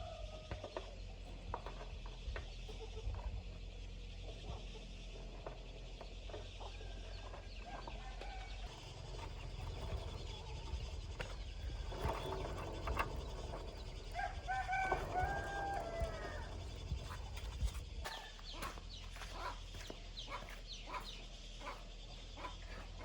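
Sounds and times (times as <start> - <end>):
steady low hum: 8.6 - 23.0.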